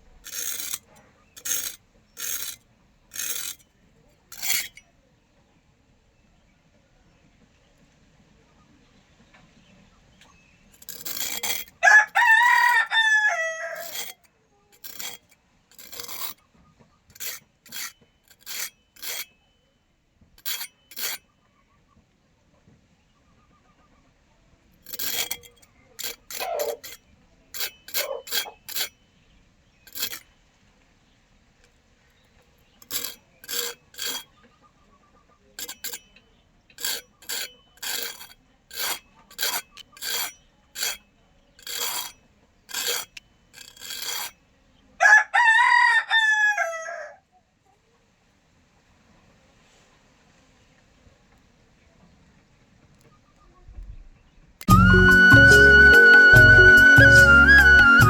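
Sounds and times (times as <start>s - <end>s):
rasping scraping strokes: 0.0s - 4.8s, 10.8s - 16.4s, 17.1s - 19.4s, 20.4s - 21.2s, 24.8s - 29.0s, 29.9s - 30.3s, 32.7s - 34.4s, 35.6s - 44.4s, 54.6s - 58.0s
rooster crowing: 11.8s - 14.1s, 45.0s - 47.2s.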